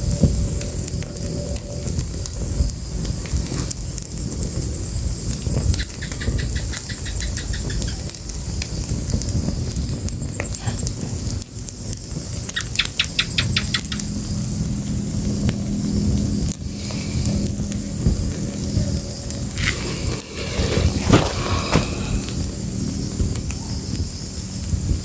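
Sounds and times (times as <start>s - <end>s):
fire crackling with low rumble: 0.0s - 25.0s
quick run of short high ticks: 15.4s - 22.6s
sharp pops: 19.3s - 22.7s.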